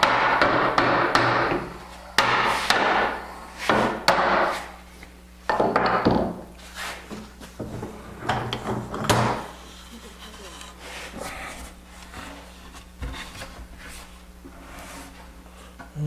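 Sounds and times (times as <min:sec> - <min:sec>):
sharp wooden knocks: 0:00.0 - 0:04.5
wood scraping as it slides: 0:09.6 - 0:15.3.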